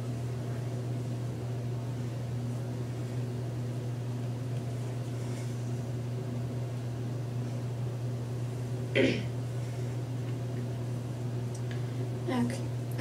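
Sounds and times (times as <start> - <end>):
steady low hum with hiss: 0.0 - 13.0.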